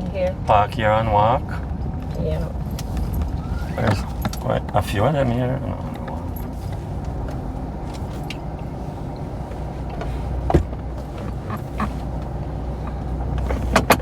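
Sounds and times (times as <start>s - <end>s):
car engine hum from cabin: 0.0s - 14.0s.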